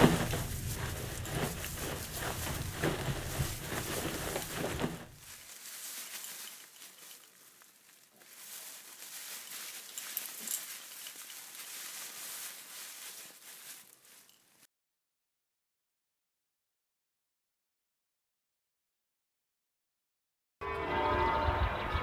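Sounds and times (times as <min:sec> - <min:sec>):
cotton fabric rustling: 0:00.0 - 0:14.7
crackly rustling with low rumble: 0:00.0 - 0:14.7.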